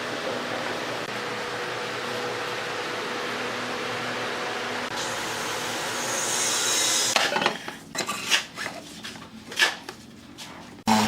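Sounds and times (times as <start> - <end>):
woodworking machine running: 0.0 - 7.2.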